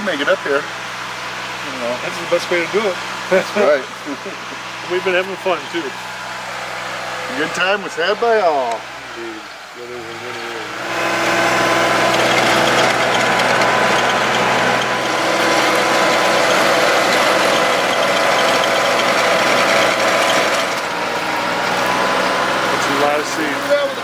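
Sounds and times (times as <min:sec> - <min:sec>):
engine running: 0:00.0 - 0:24.0
rattling mechanical clatter: 0:10.8 - 0:24.0.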